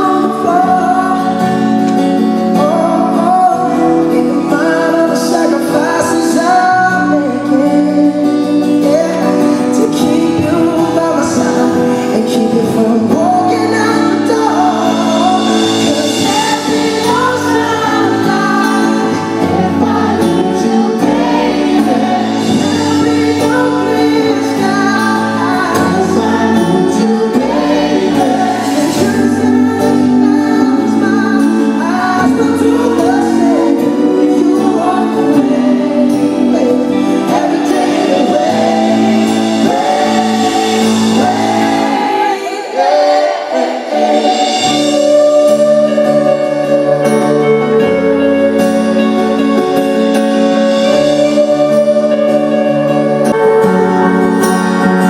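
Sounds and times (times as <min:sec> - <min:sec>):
band accompaniment: 0:00.0 - 0:55.0
person singing pop ballad: 0:00.0 - 0:55.0
sustained keyboard chords: 0:44.4 - 0:55.0.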